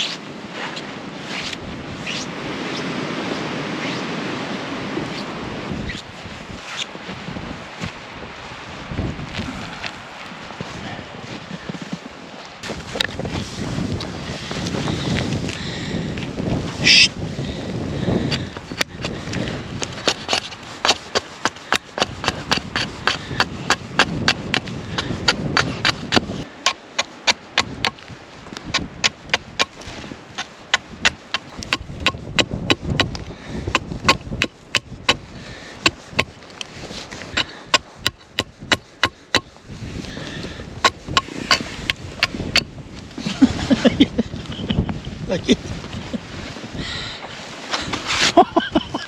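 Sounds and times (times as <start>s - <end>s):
sharp wooden knocks: 19.8s - 28.0s, 28.7s - 29.8s, 30.4s - 35.2s, 35.8s - 36.4s, 37.3s - 39.6s, 40.2s - 42.7s.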